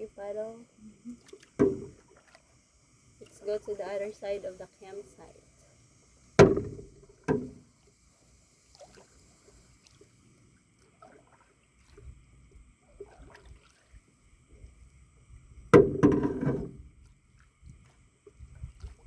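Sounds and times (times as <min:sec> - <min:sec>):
paddles dipping through water: 0:00.0 - 0:19.0
sharp ringing knock: 0:06.4 - 0:07.6.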